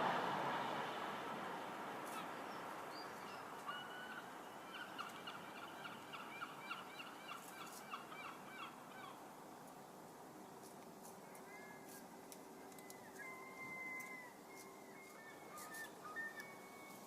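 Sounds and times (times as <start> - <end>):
bird calling: 2.0 - 9.2, 12.6 - 17.0.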